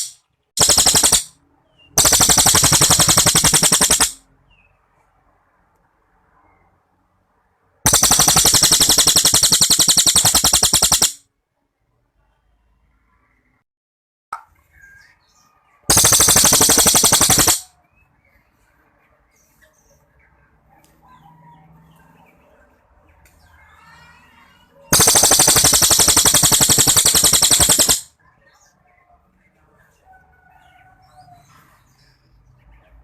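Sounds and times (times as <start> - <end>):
songbird rattling trills: 0.0 - 1.3, 2.0 - 4.2, 7.9 - 11.2, 15.9 - 17.6, 25.0 - 28.1
faint bird chirps: 14.4 - 33.0.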